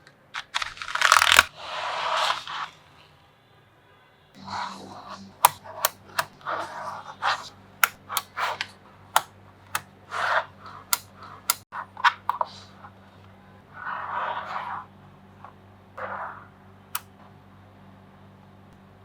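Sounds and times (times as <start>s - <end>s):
magnetic balls snapping together: 5.4s - 6.6s, 7.2s - 11.6s.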